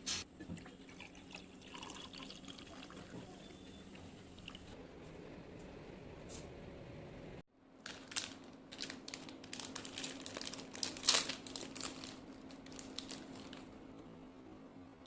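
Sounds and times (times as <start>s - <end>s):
faint steady hum: 0.0s - 15.0s
wrapper crinkling: 7.8s - 13.8s.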